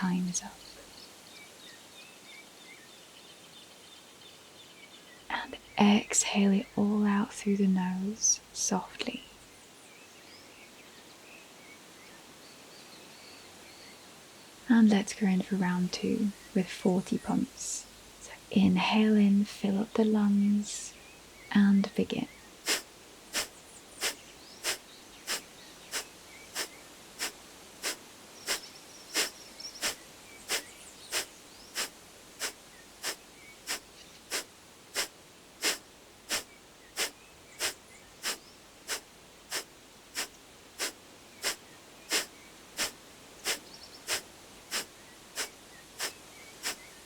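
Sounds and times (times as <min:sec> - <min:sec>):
forceful exhalations through nose: 0:22.6 - 0:47.0.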